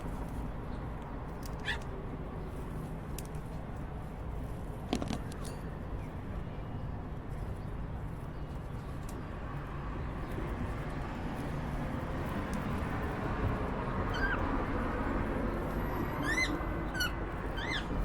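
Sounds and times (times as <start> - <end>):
birds clicking and tapping: 8.6 - 14.5.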